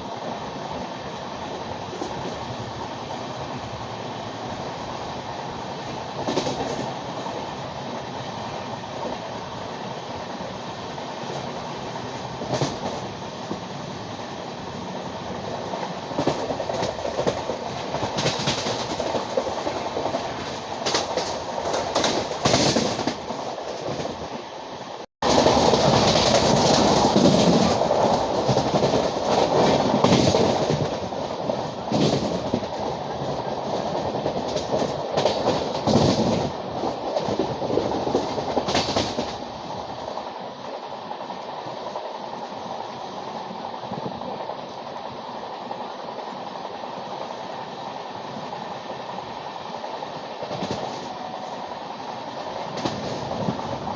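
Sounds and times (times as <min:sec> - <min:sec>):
train rumbling on track: 0:00.0 - 0:53.9
wheels clattering over rail joints: 0:15.7 - 0:24.3, 0:25.2 - 0:39.5.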